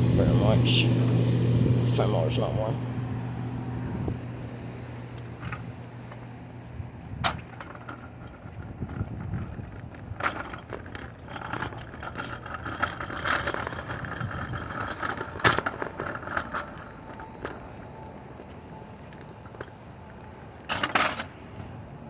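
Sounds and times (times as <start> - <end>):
air conditioning units humming: 0.0 - 22.0
sharp handling clicks and scraping: 5.1 - 6.2, 7.0 - 21.8.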